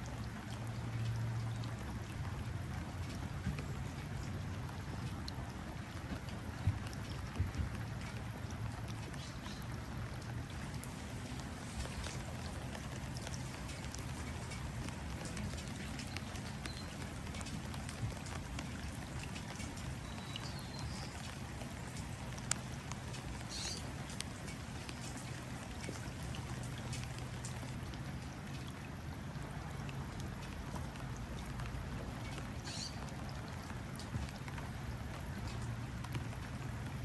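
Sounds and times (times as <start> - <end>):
rain pattering into water: 0.0 - 37.0
bird chirps: 23.5 - 23.8, 32.6 - 33.0.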